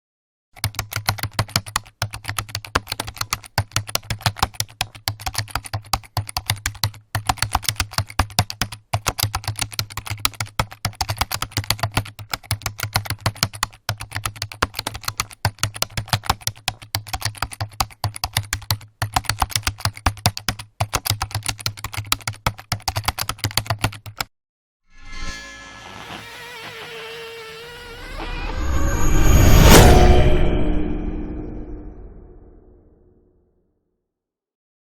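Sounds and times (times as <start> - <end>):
rapid typing on keyboard: 0.6 - 24.3.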